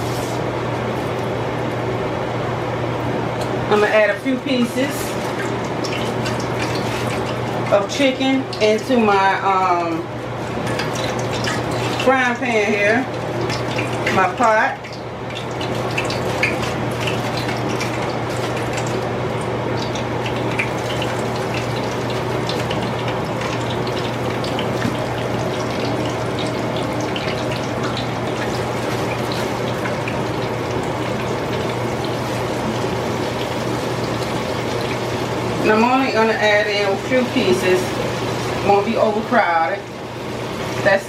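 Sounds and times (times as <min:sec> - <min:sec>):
oil sizzling and crackling: 0:05.1 - 0:07.8, 0:19.8 - 0:35.6.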